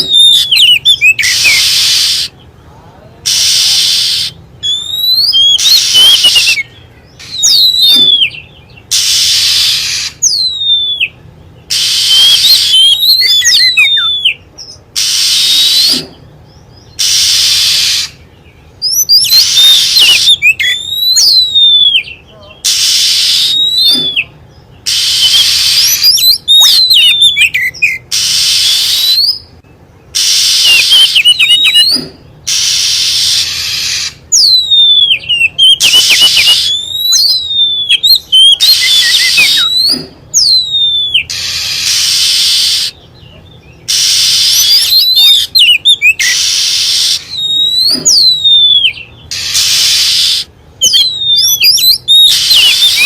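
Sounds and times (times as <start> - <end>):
bird whistling: 0.0 - 2.4, 3.3 - 53.0
harsh hissing rasps: 1.3 - 2.4, 3.2 - 4.4, 8.9 - 10.2, 17.0 - 18.2, 28.1 - 29.0, 30.2 - 31.2, 31.8 - 34.2, 41.3 - 43.0, 43.9 - 44.8, 46.2 - 47.3, 49.3 - 50.5.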